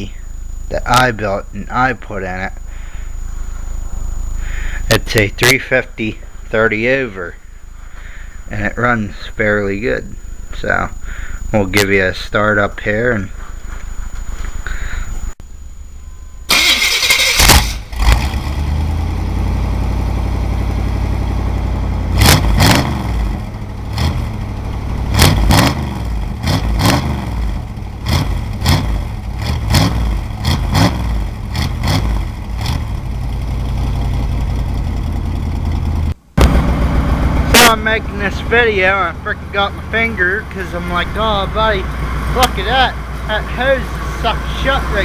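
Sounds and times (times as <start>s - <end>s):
engine cranking: 16.5s - 45.0s
car engine running and revving: 17.4s - 45.0s.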